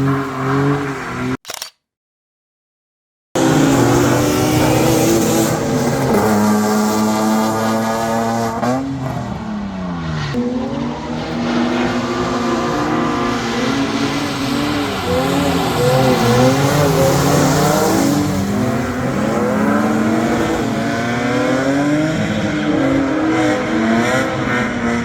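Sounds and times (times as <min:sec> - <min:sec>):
car engine revving: 0:03.4 - 0:25.0
tyres hissing on wet track: 0:11.4 - 0:20.7.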